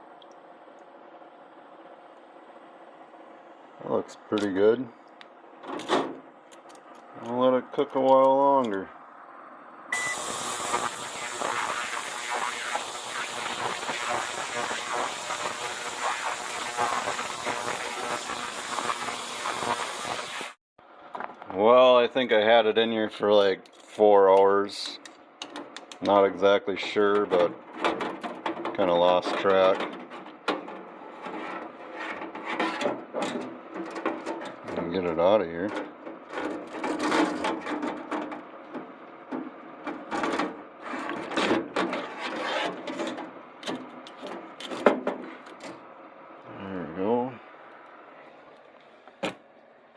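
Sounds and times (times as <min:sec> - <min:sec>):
cleaning bath hissing and crackling: 0:10.1 - 0:20.6.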